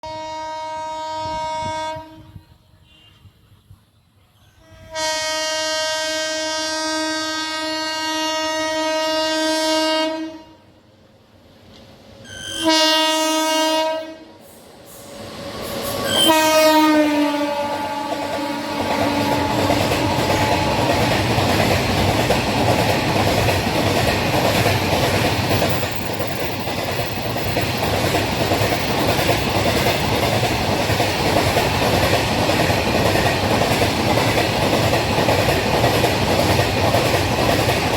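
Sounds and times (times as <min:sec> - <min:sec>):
locomotive horn blasts: 0:00.0 - 0:03.4, 0:04.6 - 0:10.6, 0:12.3 - 0:14.4, 0:16.1 - 0:21.1
train wheels clacking on rails: 0:17.9 - 0:37.9.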